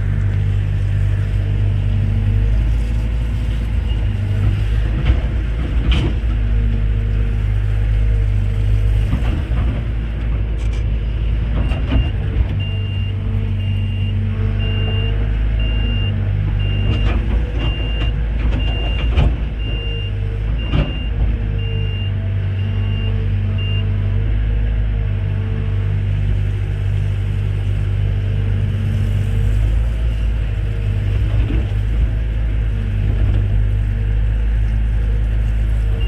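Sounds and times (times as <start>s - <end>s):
diesel machinery running: 0.0s - 36.0s.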